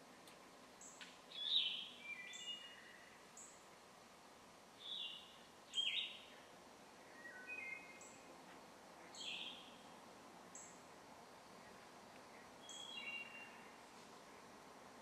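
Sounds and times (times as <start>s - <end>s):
faint background hiss: 0.0s - 15.0s
birds chirping: 4.8s - 8.4s, 9.0s - 10.8s, 11.6s - 13.8s.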